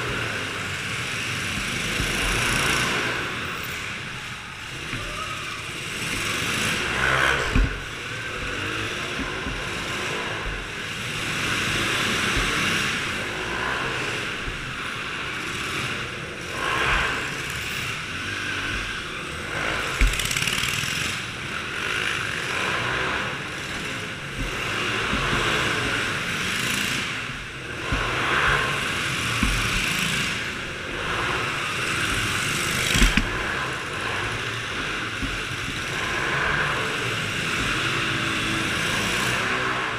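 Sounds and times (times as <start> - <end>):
small engine vehicles running: 0.0 - 39.9
sharp low thumps: 7.4 - 15.2.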